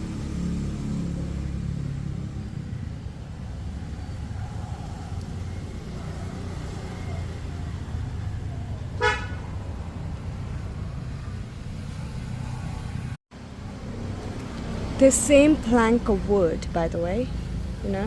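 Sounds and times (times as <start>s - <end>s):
road traffic rumble: 0.0s - 18.0s
vehicle horn beep: 9.0s - 9.4s.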